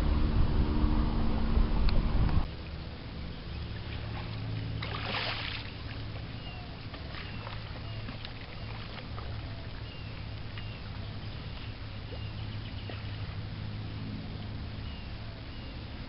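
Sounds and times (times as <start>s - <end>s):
steady low hum: 0.0s - 16.0s
kayak paddle splashing water: 3.5s - 13.8s.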